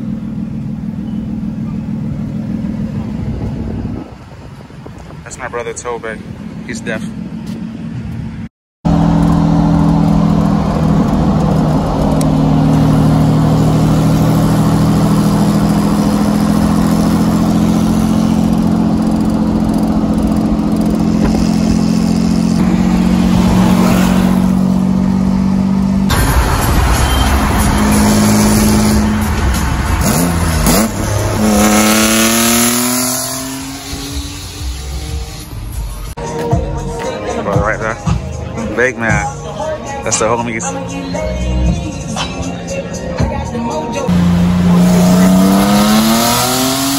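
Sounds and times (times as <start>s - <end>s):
car engine revving: 8.9s - 36.2s, 44.0s - 46.9s.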